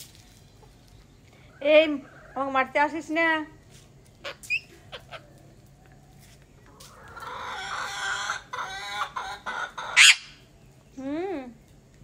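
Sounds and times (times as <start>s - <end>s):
chickens clucking: 3.7s - 10.9s
chicken squawk: 4.2s - 5.4s, 6.7s - 10.4s.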